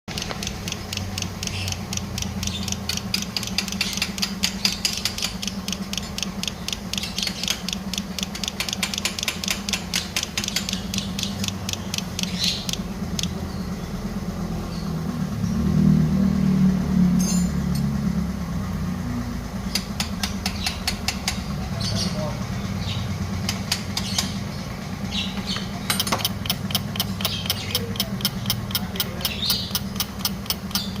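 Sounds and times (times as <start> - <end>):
rapid mechanical clicking: 0.1 - 13.4, 25.1 - 31.0.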